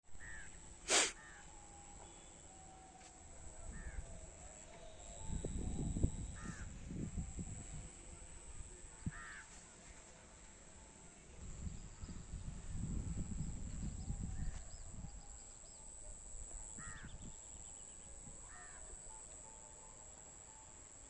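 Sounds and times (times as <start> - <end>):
crows cawing: 0.2 - 0.6, 3.7 - 4.0, 6.4 - 6.7, 9.1 - 9.5, 16.8 - 17.1, 18.5 - 18.8.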